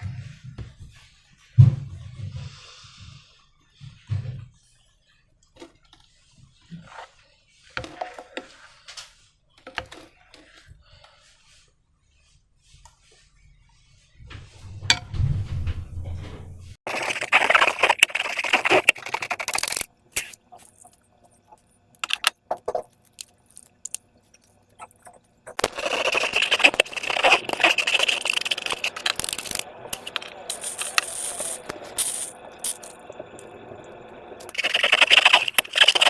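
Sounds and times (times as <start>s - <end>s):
slime crackling and scraping: 16.8s - 33.0s, 34.4s - 36.0s.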